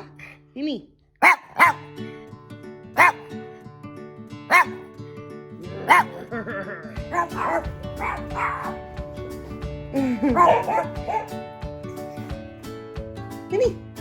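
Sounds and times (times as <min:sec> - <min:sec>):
dog barking and yelping: 0:00.0 - 0:00.4, 0:01.2 - 0:01.9, 0:03.0 - 0:03.3, 0:04.5 - 0:04.8, 0:05.8 - 0:06.3, 0:07.1 - 0:09.1, 0:10.2 - 0:11.4
background music: 0:00.0 - 0:14.0.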